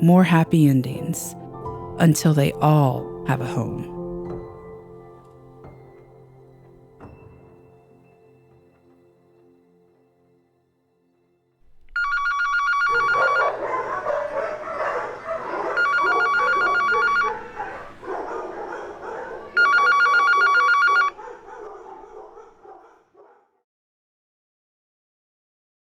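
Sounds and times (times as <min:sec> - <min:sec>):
telephone ringing: 0:12.0 - 0:13.7, 0:15.5 - 0:17.7, 0:19.5 - 0:21.2
dogs barking: 0:12.7 - 0:23.6.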